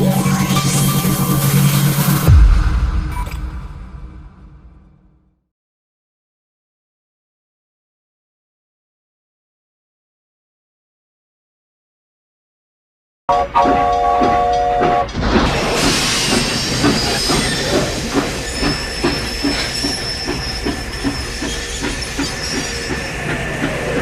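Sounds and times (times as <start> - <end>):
steam locomotive whistle: 13.3 - 15.2
locomotive chugging clatter: 13.3 - 24.0
steam hiss: 15.4 - 24.0.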